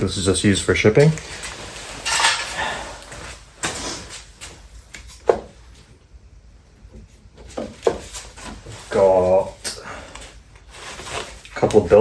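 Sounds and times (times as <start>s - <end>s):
scrape: 10.7s - 11.4s.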